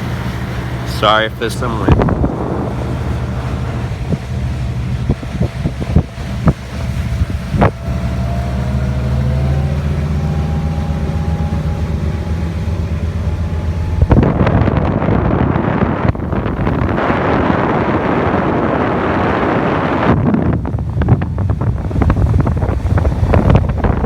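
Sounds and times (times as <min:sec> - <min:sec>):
boat motor humming: 0:00.0 - 0:24.0
wind buffeting microphone: 0:00.0 - 0:24.0.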